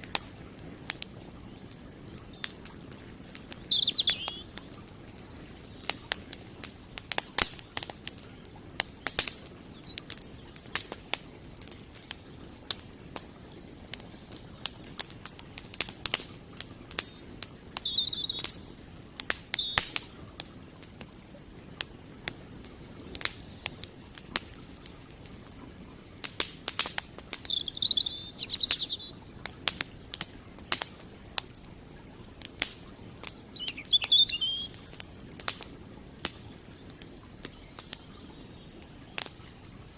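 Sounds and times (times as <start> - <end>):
campfire crackling and popping: 0.0 - 39.9
creek water rushing: 0.0 - 39.9
small bird chirping: 1.5 - 6.0, 9.7 - 10.8, 17.0 - 20.0, 27.4 - 29.2, 33.5 - 35.6.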